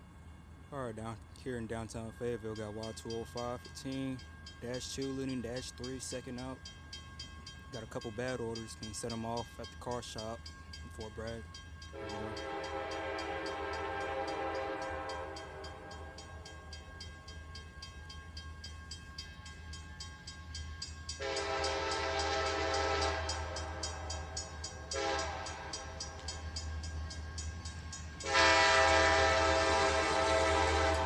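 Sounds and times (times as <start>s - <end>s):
locomotive bell clanging: 0.0s - 31.0s
locomotive air horn blast: 12.0s - 15.4s, 21.2s - 23.5s, 24.9s - 25.7s, 28.2s - 31.0s.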